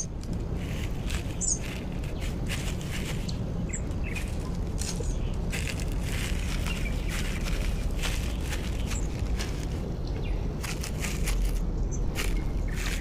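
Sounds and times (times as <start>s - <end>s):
low rumble: 0.0s - 13.0s
rustling: 0.0s - 13.0s
high bird chirp: 1.3s - 2.3s.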